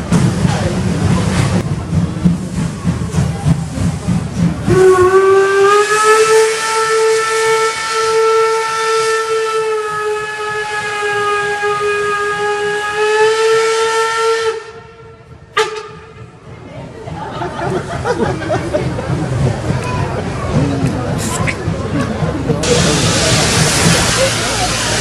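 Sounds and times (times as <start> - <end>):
steam locomotive whistle: 4.6 - 16.2
steam hissing: 22.6 - 25.0.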